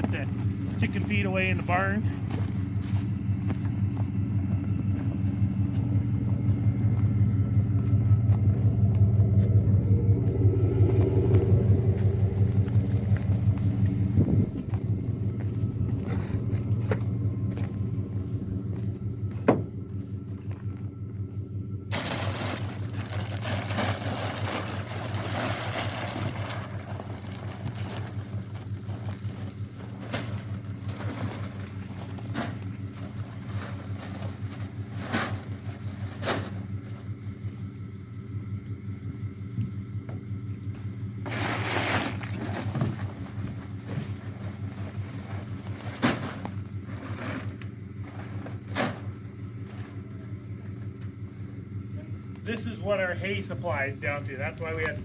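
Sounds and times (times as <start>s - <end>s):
pickup truck engine running: 0.0s - 55.0s.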